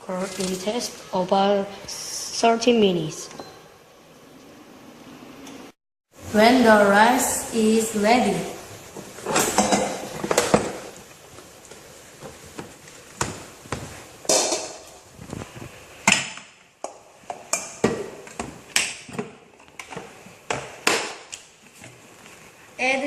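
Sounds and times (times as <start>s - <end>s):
kitchen utensils knocking and clinking: 9.2s - 11.0s, 14.3s - 15.0s.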